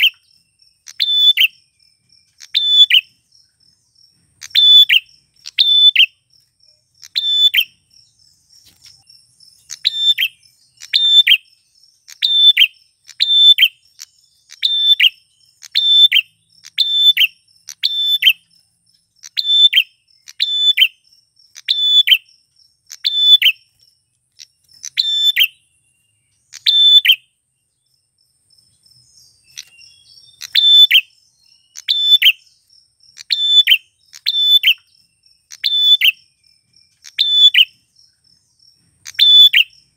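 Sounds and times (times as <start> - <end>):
bird sharp high chirps: 0.0 - 39.9
faint insect trill: 0.0 - 39.9.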